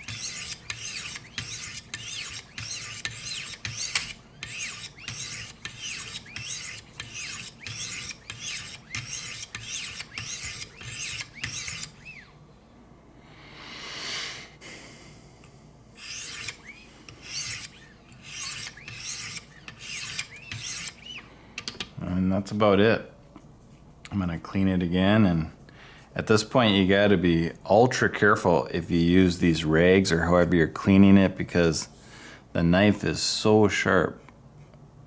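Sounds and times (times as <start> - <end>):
sharpening stones rasping on blade: 0.0 - 12.0, 16.0 - 21.0.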